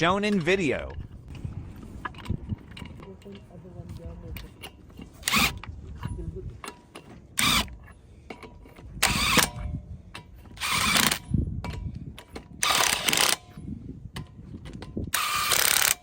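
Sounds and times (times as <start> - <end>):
ratchet wrench clicking: 10.6 - 11.3, 12.6 - 13.6, 15.1 - 16.0.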